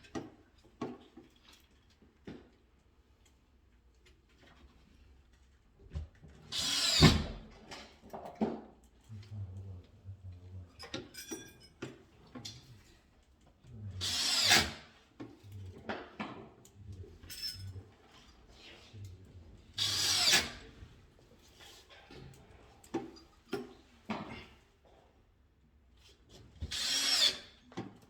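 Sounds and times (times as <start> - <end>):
drill driving screws: 6.5 - 7.3, 14.0 - 14.8, 19.8 - 20.6, 26.7 - 27.5.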